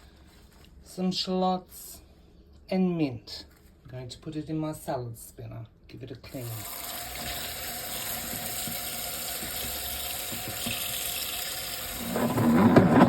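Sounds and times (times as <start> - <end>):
tap water running: 6.3 - 13.0.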